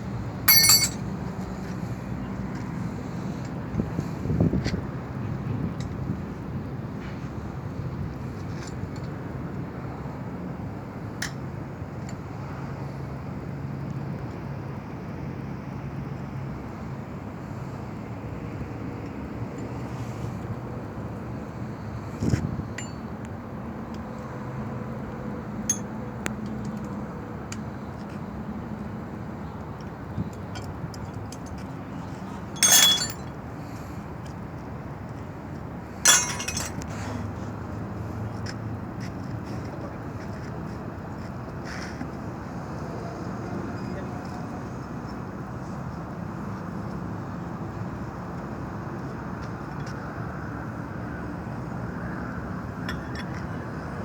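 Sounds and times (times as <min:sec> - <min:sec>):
loud metallic clanks: 0:00.5 - 0:01.0, 0:32.6 - 0:33.2, 0:36.1 - 0:36.8.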